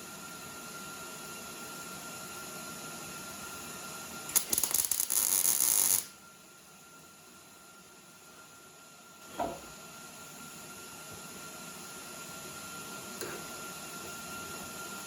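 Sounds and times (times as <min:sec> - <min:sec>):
welder crackling sizzle: 0:04.2 - 0:06.2.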